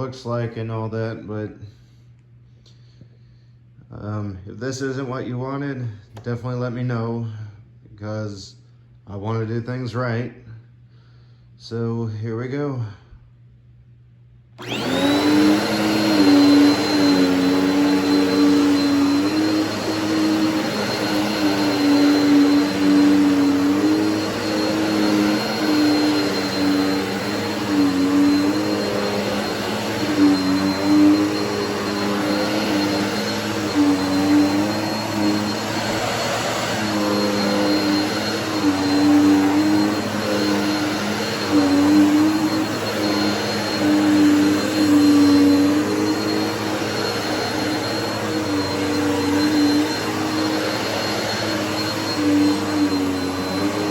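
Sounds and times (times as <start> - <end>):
vacuum cleaner running: 14.5 - 53.9.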